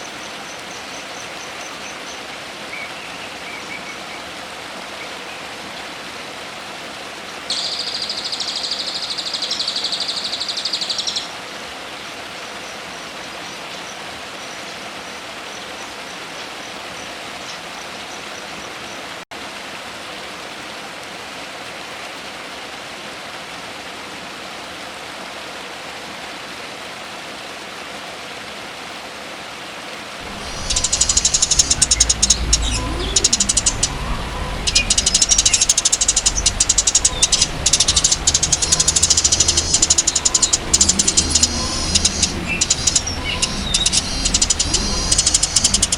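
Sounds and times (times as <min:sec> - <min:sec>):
songbird song: 0:00.0 - 0:06.4, 0:07.5 - 0:19.2, 0:30.2 - 0:45.9
high-pitched bird chattering: 0:30.2 - 0:45.9
steady hiss: 0:30.2 - 0:45.9
faint ticks: 0:30.4 - 0:34.0, 0:34.7 - 0:45.9.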